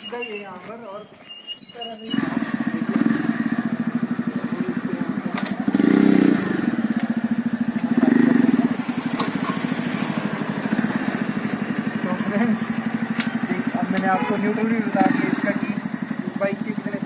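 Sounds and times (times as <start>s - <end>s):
motorcycle engine thumping: 2.4s - 17.0s.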